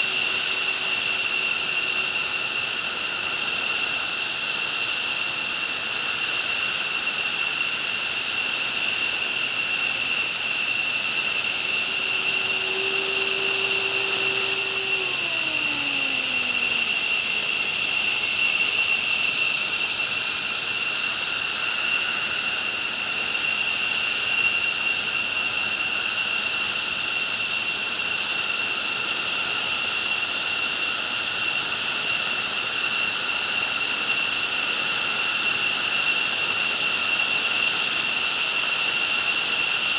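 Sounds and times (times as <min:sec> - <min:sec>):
jet engines whining: 0:11.0 - 0:17.5
low tone gliding down: 0:11.5 - 0:17.1.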